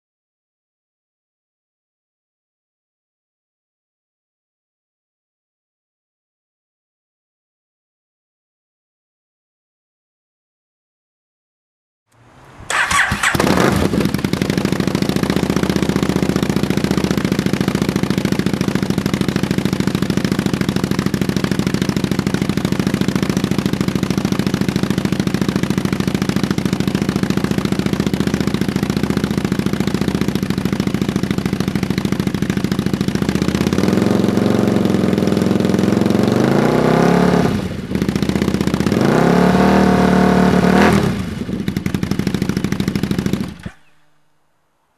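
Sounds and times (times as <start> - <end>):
motorcycle engine revving: 12.1 - 44.2
motorcycle engine idling: 12.7 - 36.6, 37.3 - 39.0, 40.4 - 44.2.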